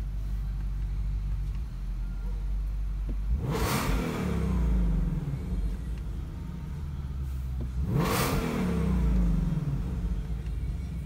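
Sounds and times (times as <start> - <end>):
car engine revving: 3.1 - 11.0.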